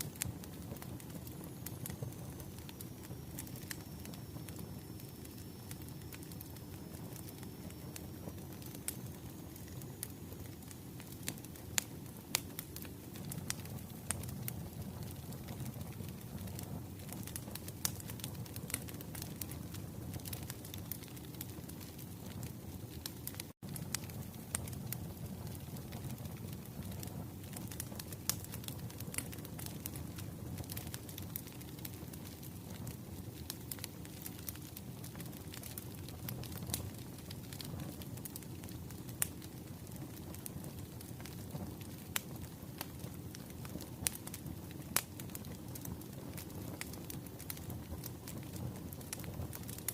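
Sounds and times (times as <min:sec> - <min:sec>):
fire pops and snaps: 0:00.0 - 0:49.9
wood fire crackling: 0:00.0 - 0:49.9.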